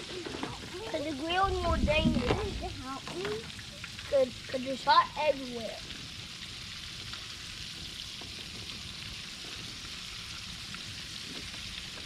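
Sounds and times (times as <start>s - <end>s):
fish frying in hot oil: 2.4s - 12.0s.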